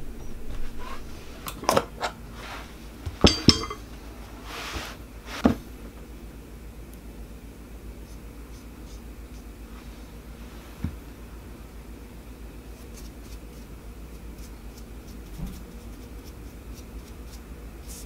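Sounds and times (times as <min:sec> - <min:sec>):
cloth wiping rustle: 0:02.3 - 0:03.0, 0:04.2 - 0:05.6, 0:09.6 - 0:11.2
metal paint tin clinking: 0:03.2 - 0:03.8.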